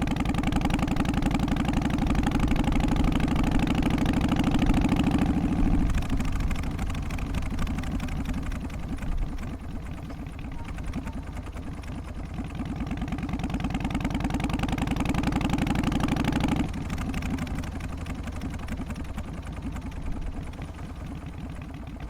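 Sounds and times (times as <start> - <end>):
motorcycle engine pulsing: 0.0 - 22.0.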